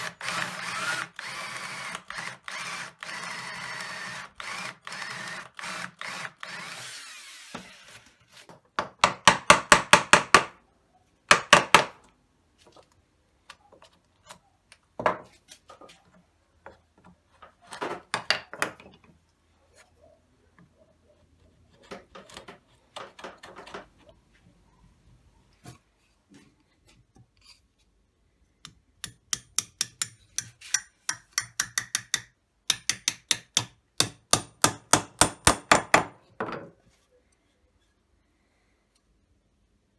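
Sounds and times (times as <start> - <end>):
hand tool sawing wood: 0.0 - 8.2.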